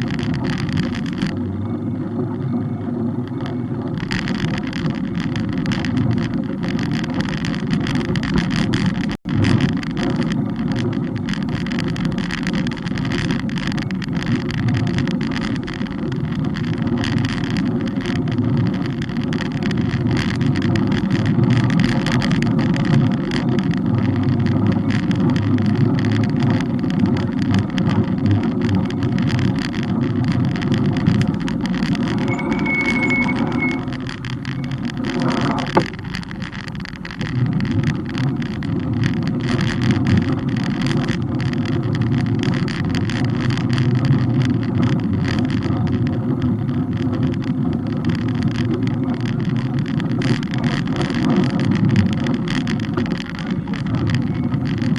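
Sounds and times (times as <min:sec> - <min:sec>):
road noise: 0:00.0 - 0:54.9
wind rumble on microphone: 0:00.0 - 0:54.9
high squeal: 0:32.2 - 0:34.8.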